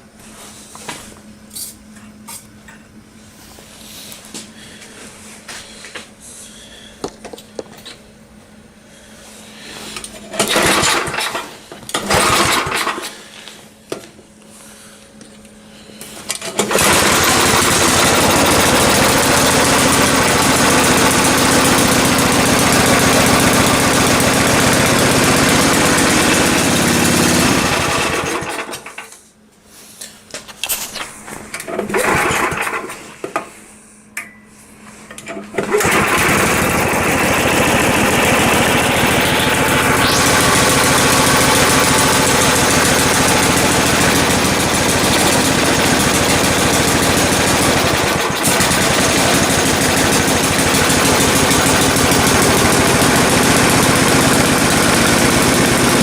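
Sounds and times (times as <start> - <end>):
snowblower engine starting and running: 8.9 - 14.9, 15.8 - 29.2, 30.7 - 33.5, 35.1 - 56.0.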